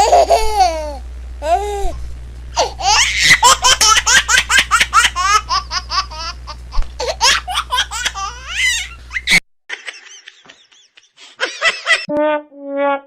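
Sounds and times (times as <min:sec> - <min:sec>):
high-pitched laughing squeals: 0:02.6 - 0:09.9.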